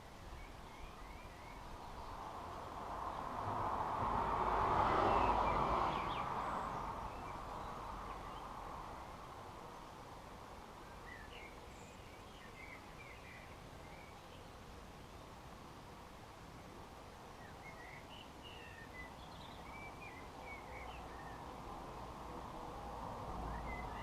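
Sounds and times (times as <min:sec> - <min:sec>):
small birds chirping: 0:00.0 - 0:03.4, 0:05.0 - 0:15.5, 0:16.4 - 0:22.3, 0:23.3 - 0:24.0
broad rushing noise: 0:01.8 - 0:10.8.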